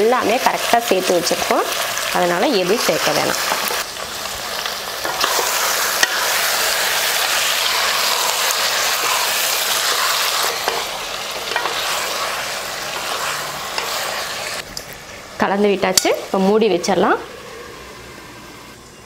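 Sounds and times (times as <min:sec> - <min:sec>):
chicken sizzling in hot oil: 0:00.0 - 0:14.6.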